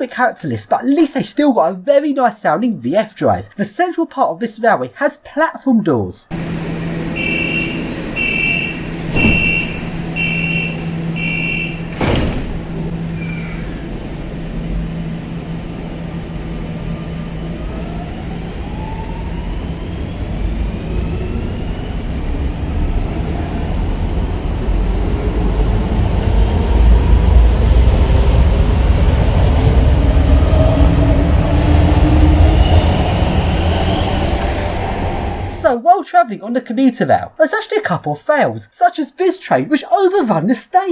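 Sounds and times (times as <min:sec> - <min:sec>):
low rumble of running train: 0:06.3 - 0:35.5
train traction drive whining: 0:06.3 - 0:35.6.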